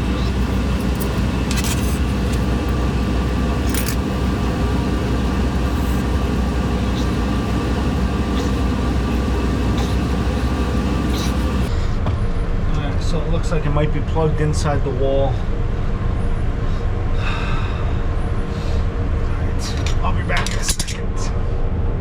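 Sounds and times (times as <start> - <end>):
kitchen equipment drone: 0.0 - 11.7.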